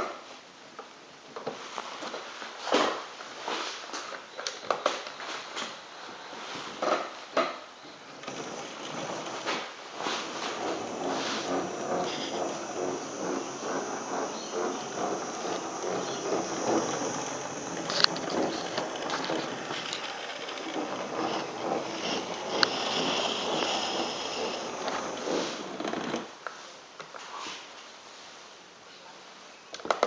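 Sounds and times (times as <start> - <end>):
model train rattling on rails: 8.2 - 26.3.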